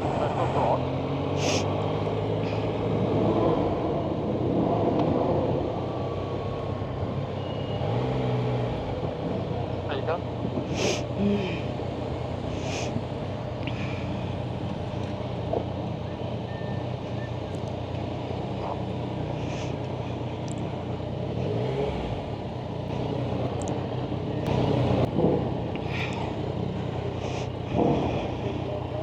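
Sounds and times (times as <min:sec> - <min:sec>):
motorcycle engine running: 0:08.9 - 0:29.0.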